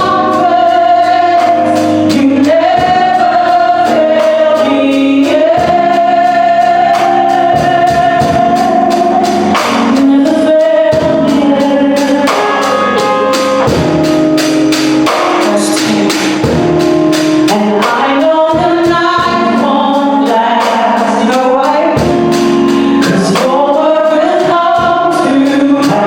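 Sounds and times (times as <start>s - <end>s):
voices singing together: 0.0s - 13.1s, 17.5s - 22.2s, 23.0s - 26.0s
instrumental accompaniment with beat: 0.0s - 26.0s.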